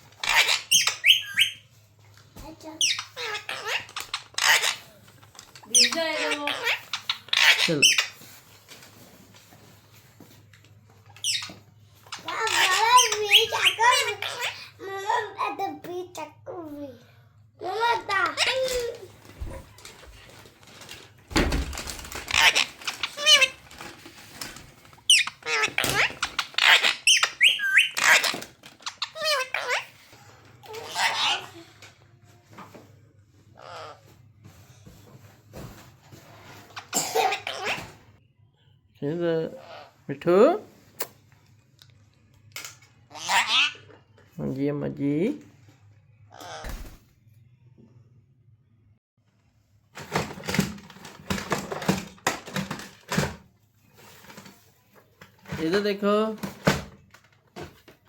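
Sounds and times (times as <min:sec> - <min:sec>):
parrot chirping and squawking: 0:00.0 - 0:01.9, 0:02.6 - 0:08.4, 0:11.1 - 0:15.0, 0:18.1 - 0:20.3, 0:21.8 - 0:24.4, 0:25.0 - 0:31.9, 0:33.5 - 0:34.2, 0:36.3 - 0:38.0, 0:43.0 - 0:44.2, 0:46.1 - 0:46.9.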